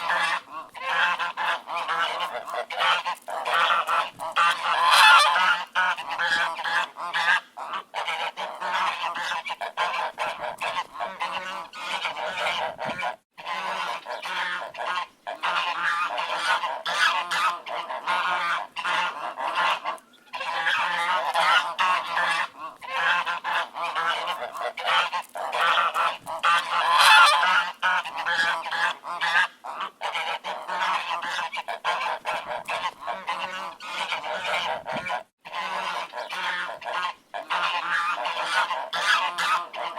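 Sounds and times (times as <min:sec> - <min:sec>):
ducks quacking: 0:00.0 - 0:39.9.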